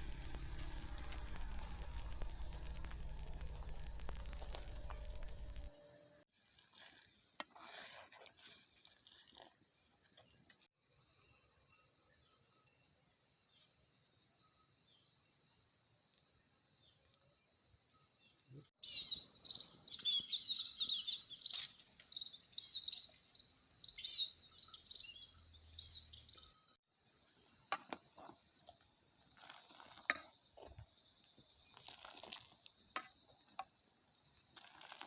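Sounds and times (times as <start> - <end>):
birds chirping: 0.0 - 5.8
insects droning: 0.0 - 6.2.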